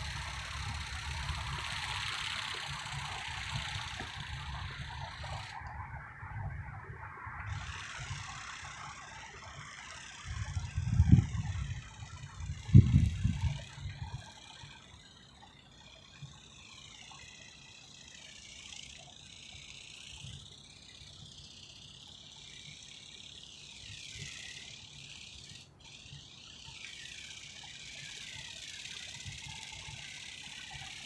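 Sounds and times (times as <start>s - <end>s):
toy bird motor whining: 0.0s - 31.0s
wind rumble on microphone: 10.3s - 14.2s.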